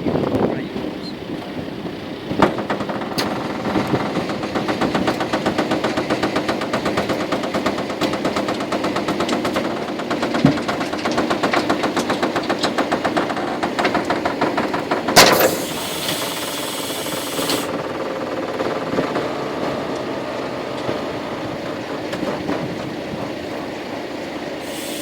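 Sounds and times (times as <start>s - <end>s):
diesel truck engine pulsing: 0.0s - 25.0s
air hiss: 15.3s - 17.7s, 24.6s - 25.0s.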